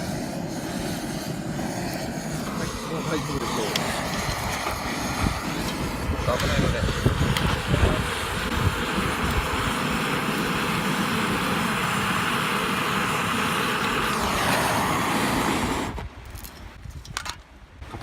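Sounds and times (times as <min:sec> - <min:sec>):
gas torch flame hissing: 0:00.0 - 0:16.1.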